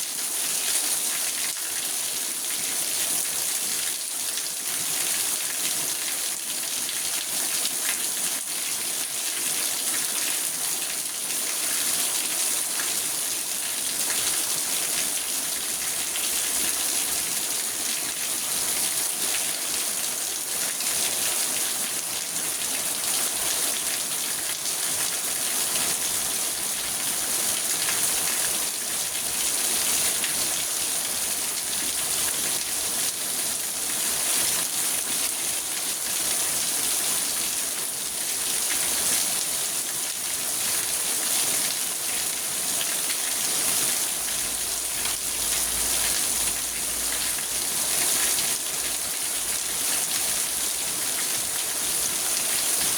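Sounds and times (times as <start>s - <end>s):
rain on a car: 44.0s - 52.1s.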